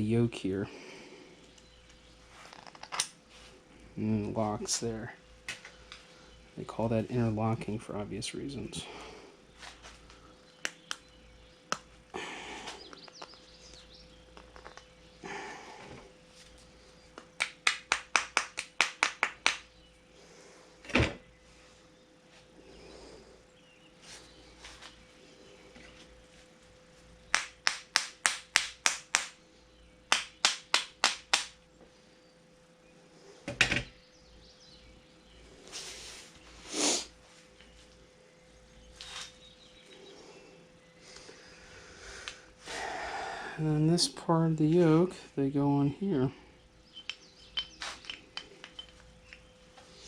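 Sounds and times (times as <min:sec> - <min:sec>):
faint steady hum: 0:00.0 - 0:50.0
rustle of handling: 0:24.0 - 0:27.1, 0:35.6 - 0:38.0, 0:38.9 - 0:39.4.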